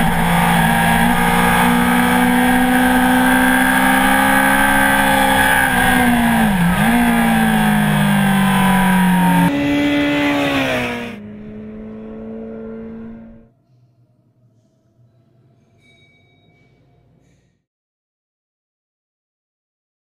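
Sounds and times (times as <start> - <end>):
motorcycle engine at high revs: 0.0 - 13.5.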